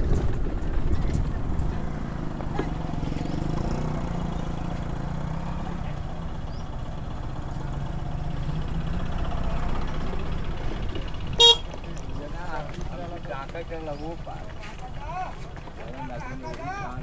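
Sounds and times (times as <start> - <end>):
road noise: 0.0 - 17.0
vehicle engine running: 0.0 - 17.0.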